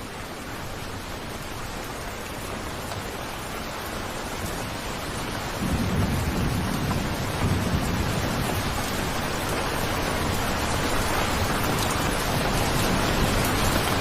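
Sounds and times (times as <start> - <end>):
rain falling: 0.0 - 14.0
thunder rumble: 5.5 - 14.0.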